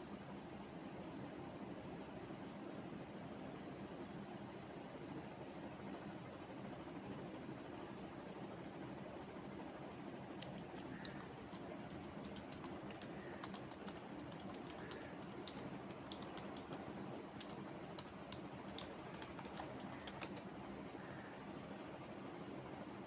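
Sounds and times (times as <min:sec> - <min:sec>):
low background hum: 0:00.0 - 0:23.0
computer keyboard typing: 0:10.4 - 0:20.6.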